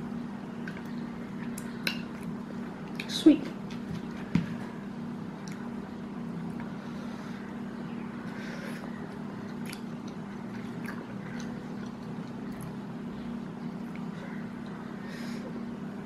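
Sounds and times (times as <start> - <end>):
steady low hum: 0.0 - 16.0
person chewing rice: 8.8 - 12.8.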